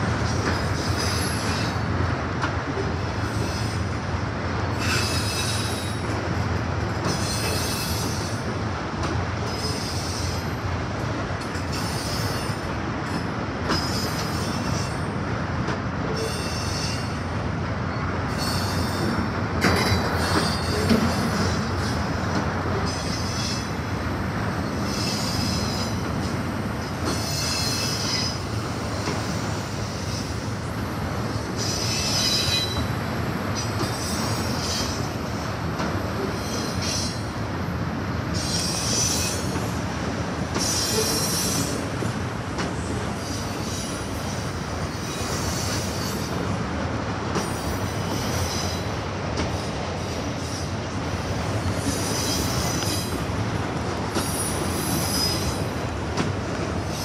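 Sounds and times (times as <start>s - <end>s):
steel wheels rumbling on rail: 0.0s - 57.0s
high-pitched wheel squeal: 27.1s - 30.4s, 31.6s - 32.9s, 54.2s - 55.7s.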